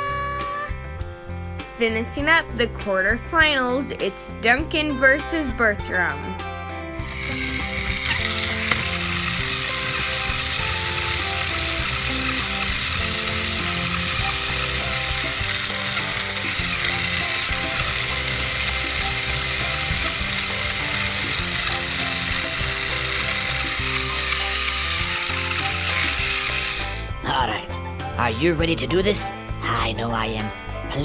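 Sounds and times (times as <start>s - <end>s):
light background music: 0.0s - 31.0s
toy train gears whirring: 7.0s - 27.1s.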